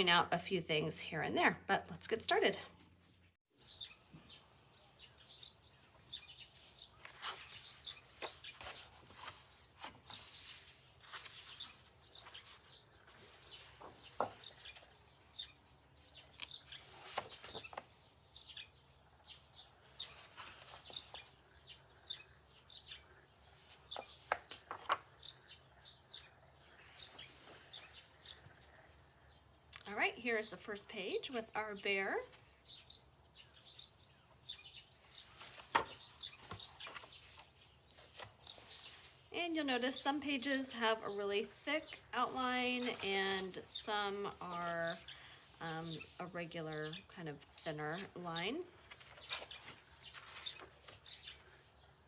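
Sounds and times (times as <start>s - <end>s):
small birds chirping: 3.5s - 52.0s
paper pages rustling: 6.6s - 15.4s, 16.3s - 18.0s, 19.8s - 21.4s, 23.6s - 25.2s, 35.0s - 39.2s, 41.0s - 46.4s, 47.4s - 51.5s.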